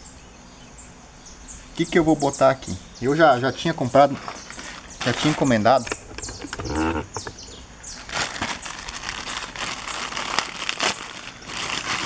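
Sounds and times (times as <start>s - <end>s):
plastic packaging crinkling: 4.0s - 12.0s.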